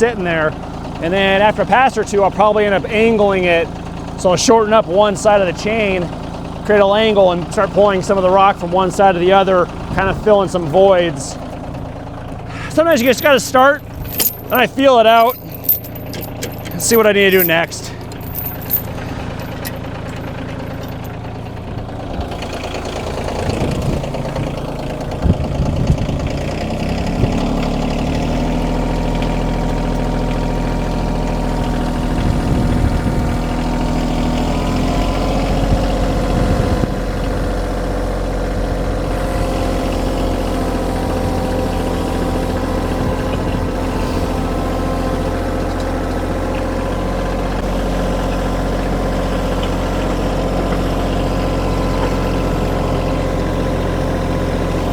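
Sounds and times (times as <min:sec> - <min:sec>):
tractor diesel engine: 0:00.0 - 0:54.9
engine knocks: 0:00.2 - 0:54.9
chain drag over gravel: 0:12.6 - 0:21.3.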